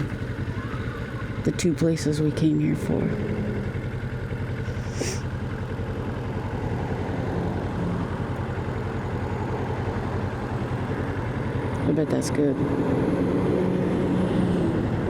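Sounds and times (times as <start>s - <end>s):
motorcycle engine running: 0.0s - 15.0s
short hiss: 4.7s - 5.2s.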